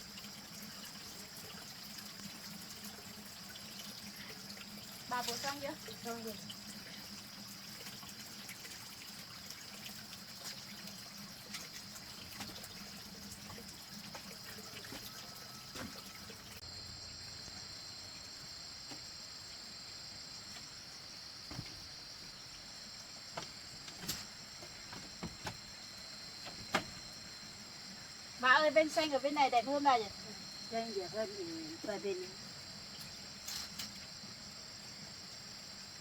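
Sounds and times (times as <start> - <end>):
constant high hiss: 0.0 - 36.0
trickle of running water: 0.0 - 36.0
light knocks and taps: 23.4 - 25.7.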